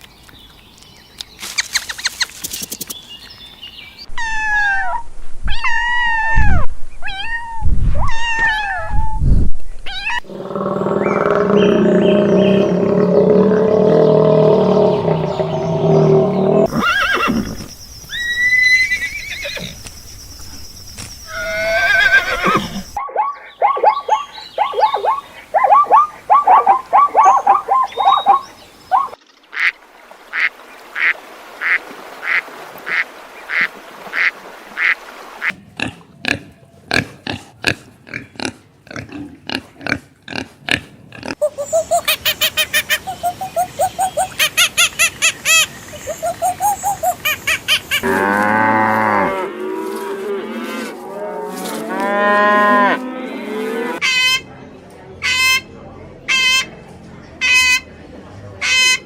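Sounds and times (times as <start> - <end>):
rapid animal calls: 21.3 - 29.7.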